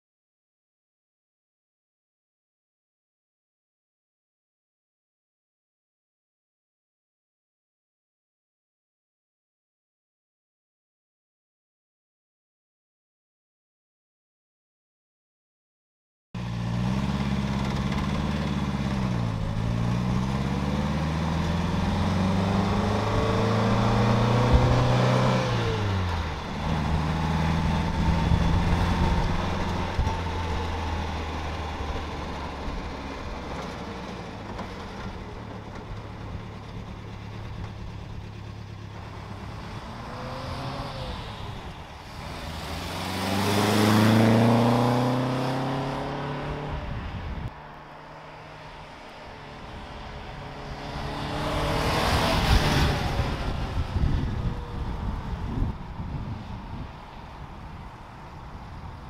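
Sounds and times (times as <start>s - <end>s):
car engine accelerating: 16.4s - 59.0s.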